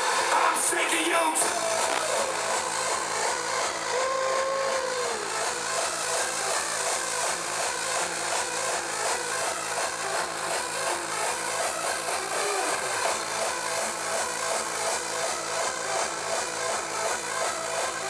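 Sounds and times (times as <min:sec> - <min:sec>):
electronic dance music: 0:00.0 - 0:18.0
synth tone sliding down: 0:01.4 - 0:06.6.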